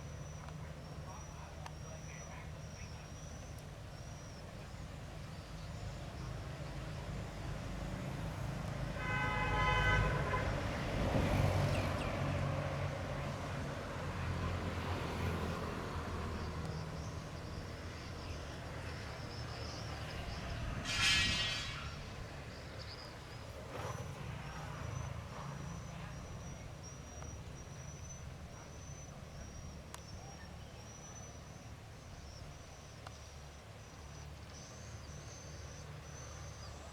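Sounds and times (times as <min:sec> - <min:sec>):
short horn toots: 0:08.9 - 0:10.7, 0:20.5 - 0:22.3.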